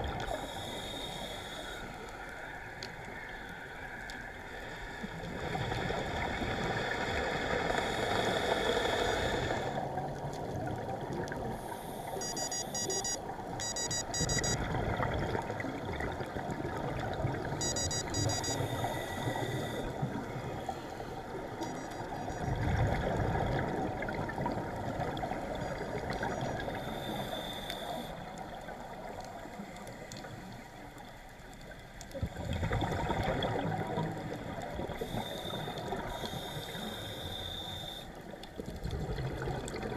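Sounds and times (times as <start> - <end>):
underwater water noise: 0.0 - 39.9
rapid high-pitched electronic beeps: 12.2 - 14.6, 17.6 - 18.6, 21.6 - 22.0
diver's exhaled regulator bubbles: 21.6 - 27.0, 32.2 - 35.1, 38.6 - 39.9.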